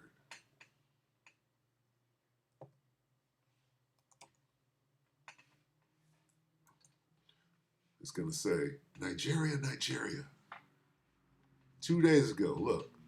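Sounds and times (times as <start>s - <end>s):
computer mouse clicks: 4.0s - 4.4s, 5.2s - 5.6s, 6.3s - 7.4s.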